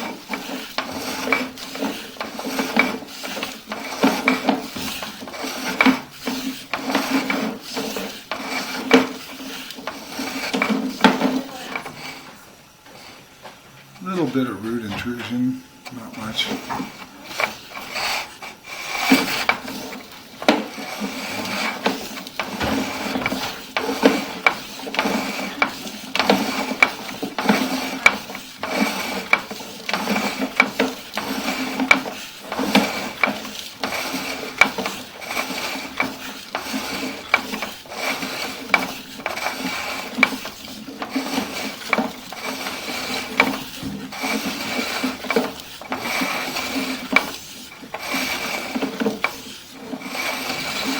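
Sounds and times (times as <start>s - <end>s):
cable scraping in drain pipe: 0.0s - 13.3s, 15.9s - 50.9s
faint steady hum: 0.0s - 24.5s.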